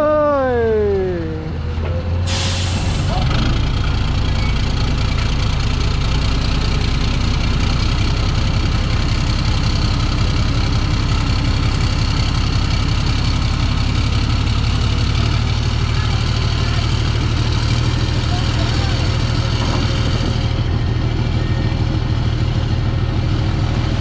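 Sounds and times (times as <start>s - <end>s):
diesel truck engine rumbling: 0.0s - 24.0s.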